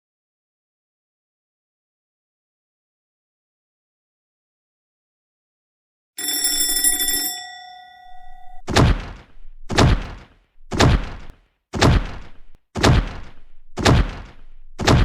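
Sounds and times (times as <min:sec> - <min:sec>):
bell ringing: 0:06.2 - 0:08.7.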